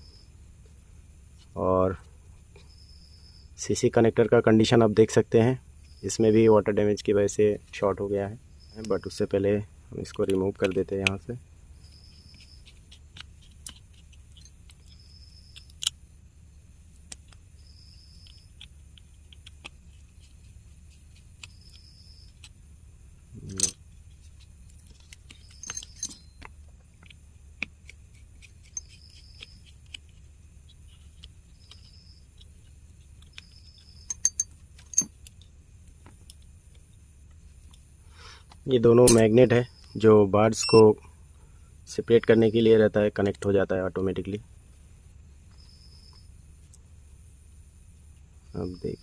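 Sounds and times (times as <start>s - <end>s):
steady low hum: 0.0s - 49.0s
tools tapping plastic earbud: 33.2s - 35.4s.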